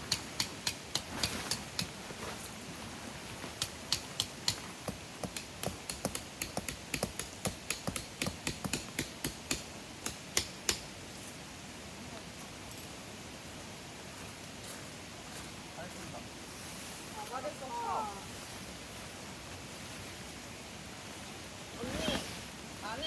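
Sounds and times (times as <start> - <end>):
sharp clicks and knocks: 3.6 - 10.8.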